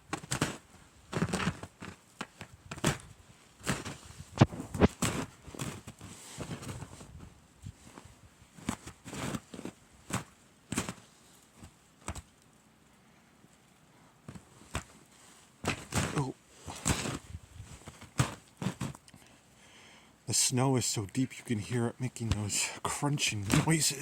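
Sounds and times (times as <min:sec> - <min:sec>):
footsteps crunching through snow: 0:02.8 - 0:11.1, 0:14.5 - 0:19.0, 0:21.4 - 0:24.0.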